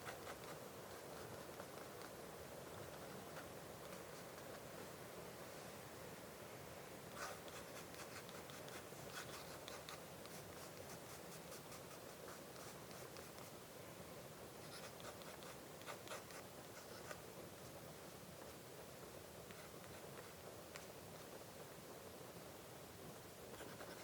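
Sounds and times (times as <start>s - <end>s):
pen nib scratching on paper: 0.0s - 2.2s, 2.8s - 4.6s, 7.1s - 13.6s, 14.6s - 17.3s, 19.4s - 21.4s, 23.5s - 24.0s.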